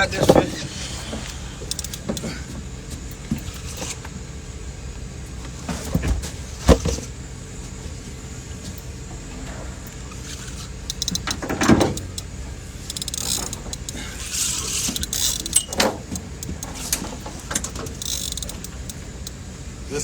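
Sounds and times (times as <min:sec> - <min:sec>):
fishing reel clicking: 0:01.7 - 0:02.3, 0:10.2 - 0:11.4, 0:12.0 - 0:16.8, 0:17.8 - 0:19.4.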